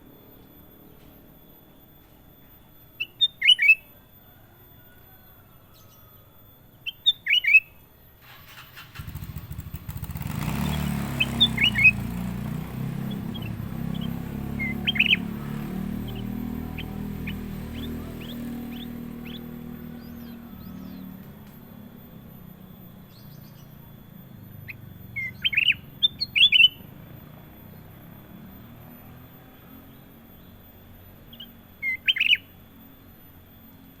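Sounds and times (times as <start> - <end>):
bird whistling: 3.0 - 3.9, 6.8 - 7.8, 10.1 - 21.2, 23.0 - 27.0, 31.3 - 32.6.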